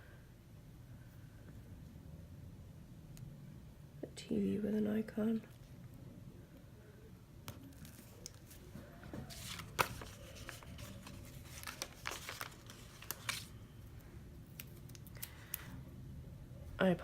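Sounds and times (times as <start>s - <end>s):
sticker sheets rustling: 7.6s - 13.5s
sticker peeled from backing: 9.3s - 13.5s.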